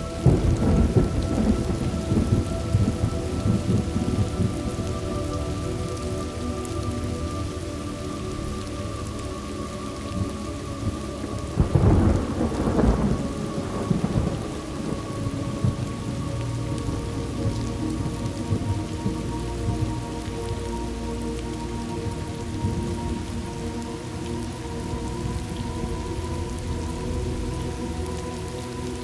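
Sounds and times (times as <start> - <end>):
thunderclap rumbling: 0.0 - 6.1, 10.2 - 20.2
steady rain: 0.0 - 29.0.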